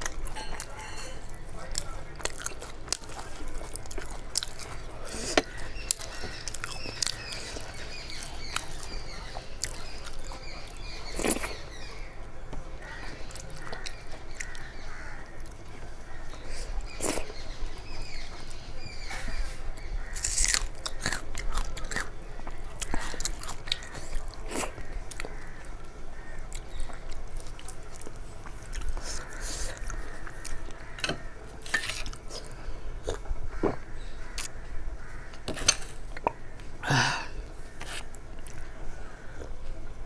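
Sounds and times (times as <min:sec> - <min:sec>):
wet chewing and mouth sounds: 0:00.0 - 0:34.6, 0:37.6 - 0:39.8
crunchy bites: 0:20.0 - 0:25.6, 0:26.3 - 0:38.7.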